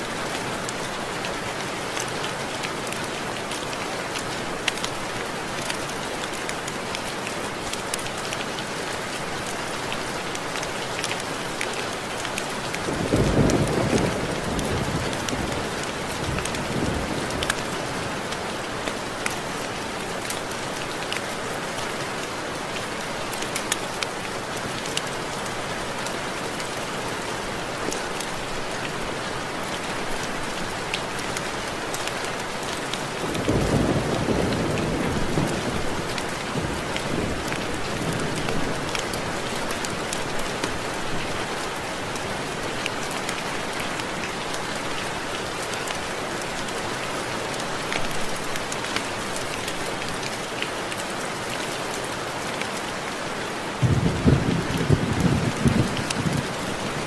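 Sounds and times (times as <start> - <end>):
rain ticking on window glass: 53.8 - 57.0
thunder rumble: 53.8 - 57.0.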